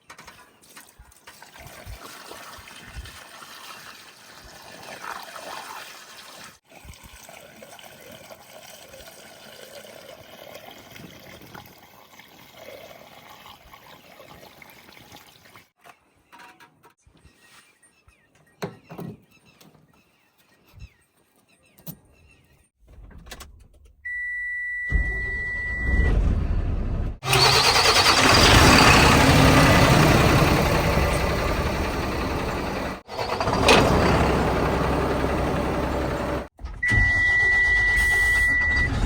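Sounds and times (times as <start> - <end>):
heavy machinery diesel engine: 25.0 - 39.0.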